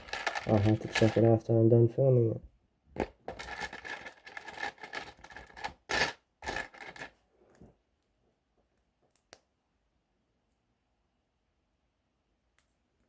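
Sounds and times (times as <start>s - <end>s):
plastic pieces clicking together: 0.0s - 1.3s, 3.3s - 7.1s
hands rattling plastic bricks: 0.0s - 1.4s, 3.0s - 7.2s.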